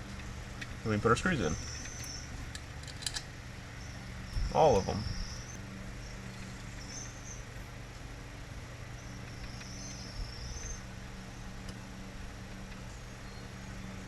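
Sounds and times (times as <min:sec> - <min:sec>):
steady low hum: 0:00.0 - 0:14.0
cricket trilling: 0:00.9 - 0:07.5, 0:08.8 - 0:11.7.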